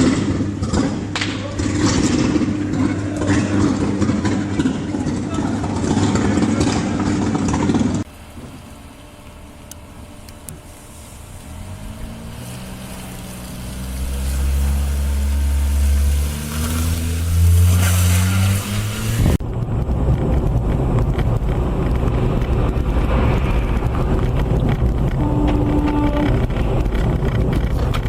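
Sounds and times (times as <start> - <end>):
rough steady rumble: 0.0 - 28.0
vehicle engine revving up: 10.7 - 19.4.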